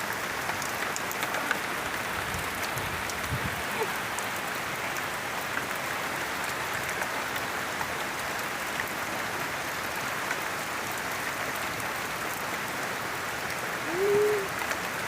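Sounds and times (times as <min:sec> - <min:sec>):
heavy rain hissing: 0:00.0 - 0:15.0
sharp raindrop ticks: 0:00.1 - 0:07.5.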